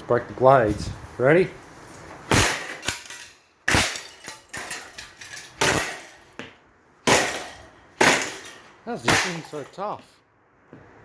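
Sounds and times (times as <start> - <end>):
fan blades being smashed: 1.9 - 10.0.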